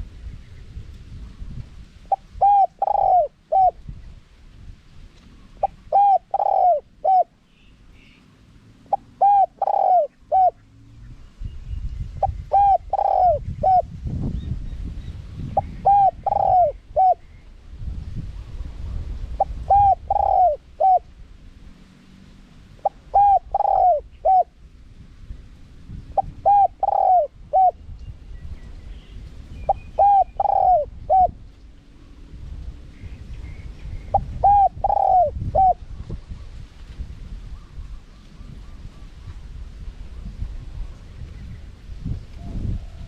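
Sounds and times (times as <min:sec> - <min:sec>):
dove cooing: 0:02.1 - 0:03.8, 0:05.6 - 0:07.4, 0:08.9 - 0:10.7, 0:12.2 - 0:13.9, 0:15.6 - 0:17.2, 0:19.4 - 0:21.0, 0:22.8 - 0:24.6, 0:26.2 - 0:27.8, 0:29.7 - 0:31.4, 0:34.1 - 0:35.8.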